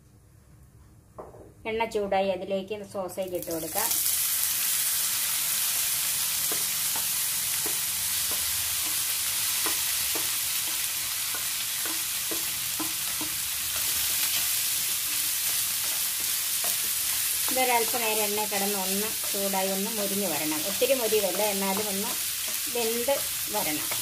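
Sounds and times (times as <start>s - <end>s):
sausage sizzling in a pan: 3.3s - 24.0s
spatulas knocking against pan: 9.6s - 13.5s.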